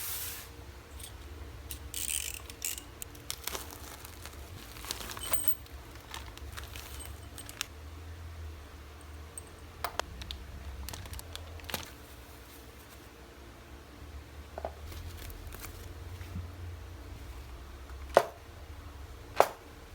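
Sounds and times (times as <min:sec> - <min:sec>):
low steady hum: 0:00.0 - 0:19.9
small metal parts clinking: 0:00.9 - 0:07.7, 0:08.9 - 0:11.9
plastic packaging crinkling: 0:01.0 - 0:07.7, 0:09.9 - 0:12.9, 0:14.8 - 0:16.0.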